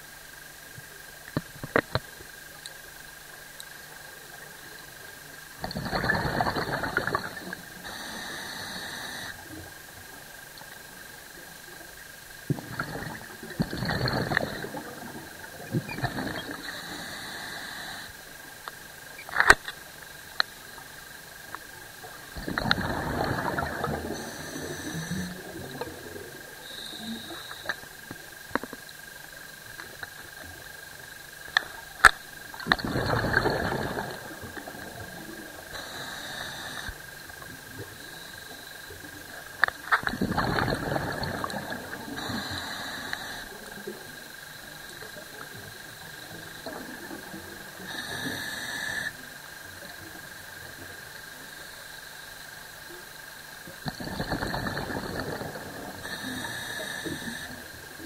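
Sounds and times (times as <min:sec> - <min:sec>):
exhaled bubbles rushing underwater: 0:05.6 - 0:09.3, 0:12.4 - 0:17.4, 0:21.9 - 0:27.6, 0:32.5 - 0:49.1, 0:53.8 - 0:58.0
regulator inhalation: 0:06.4 - 0:09.6, 0:12.7 - 0:18.3, 0:22.4 - 0:28.6, 0:32.6 - 0:39.0, 0:39.6 - 0:45.2, 0:47.8 - 0:49.2, 0:53.8 - 0:58.0.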